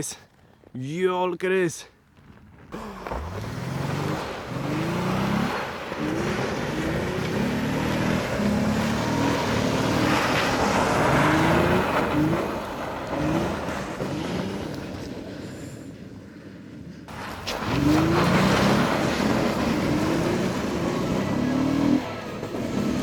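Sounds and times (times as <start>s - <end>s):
car engine revving: 2.7s - 15.7s, 17.1s - 23.0s
tyres hissing and snow spraying: 2.8s - 16.2s, 17.1s - 23.0s.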